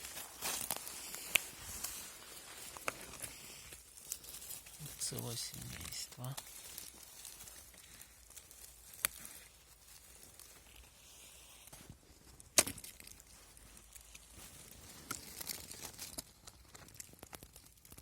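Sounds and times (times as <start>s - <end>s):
leaves and stems rustling: 0.0s - 18.0s
mushroom stem snapping: 0.4s - 1.8s, 8.2s - 9.3s, 12.4s - 13.2s.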